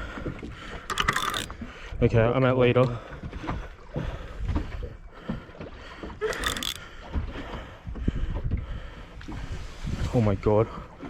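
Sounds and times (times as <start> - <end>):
water sloshing against boat: 0.0 - 11.0
wind rumbling on microphone: 7.0 - 11.0.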